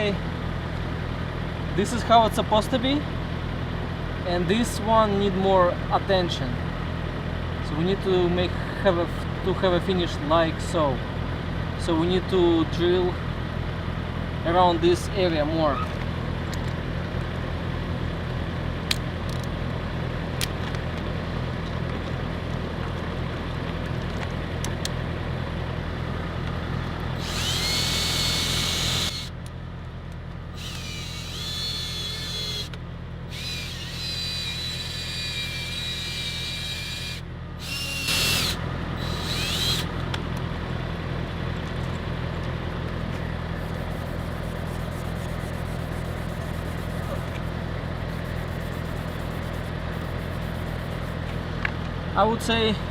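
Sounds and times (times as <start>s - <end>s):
steady low hum: 25.2s - 41.0s
electric drill whining: 27.2s - 29.3s, 30.5s - 40.0s.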